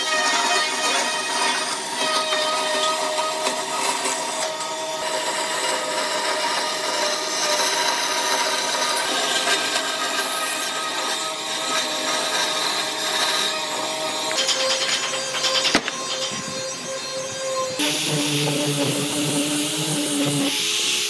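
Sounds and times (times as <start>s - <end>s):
power tool rasping wood: 0.0s - 21.0s.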